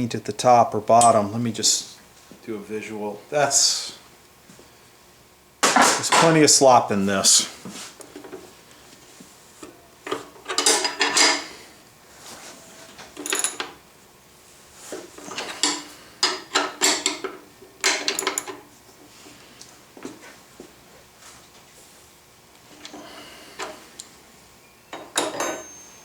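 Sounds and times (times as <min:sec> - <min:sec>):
steel parts clinking and scraping: 0:15.2 - 0:17.3, 0:24.9 - 0:26.0.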